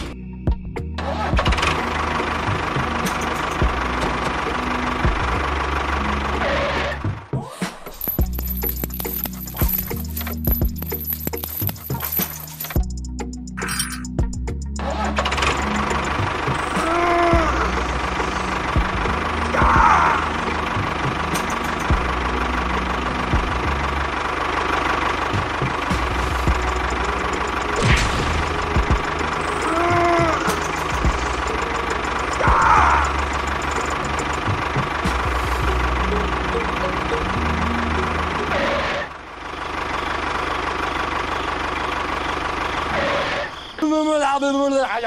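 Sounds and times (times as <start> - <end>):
small engine chugging: 8.0 - 13.2, 14.8 - 43.8.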